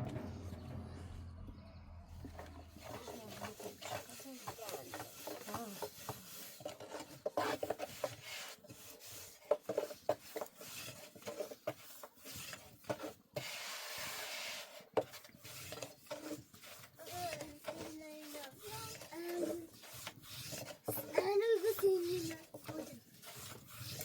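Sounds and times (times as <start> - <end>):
rubbing and scraping: 0.0 - 24.0
rasping: 15.6 - 24.0.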